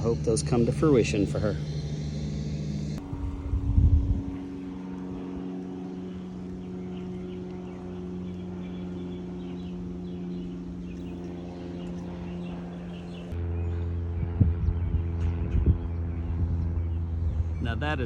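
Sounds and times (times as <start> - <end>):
low rumble: 0.0 - 4.4, 13.6 - 18.0
vehicle motor humming: 0.0 - 18.0.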